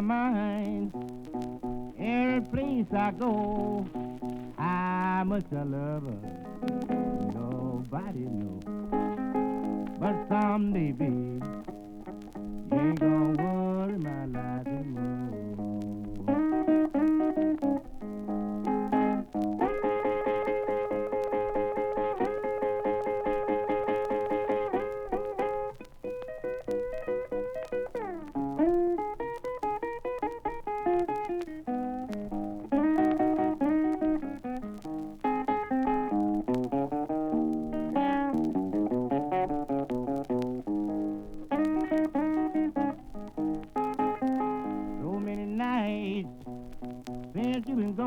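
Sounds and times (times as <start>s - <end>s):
person singing: 0.0s - 25.5s, 41.5s - 46.6s, 47.2s - 48.0s
blues electric guitar solo: 0.0s - 48.0s.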